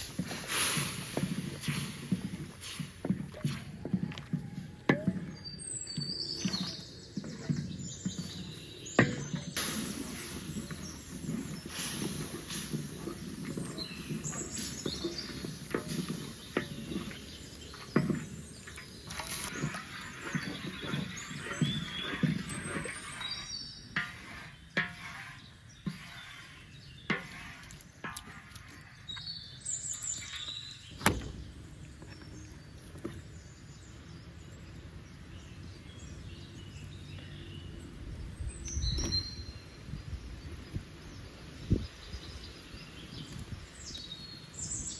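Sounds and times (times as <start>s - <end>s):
rustling handling noise: 0.0s - 29.1s
small birds chirping: 0.0s - 44.9s.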